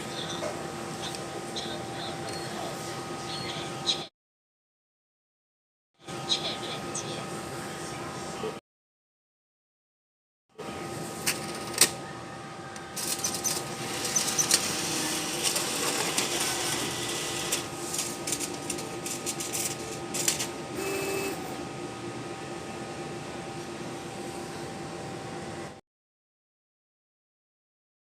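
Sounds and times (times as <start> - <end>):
machine whirring and clicking: 11.2 - 12.0, 12.8 - 21.7.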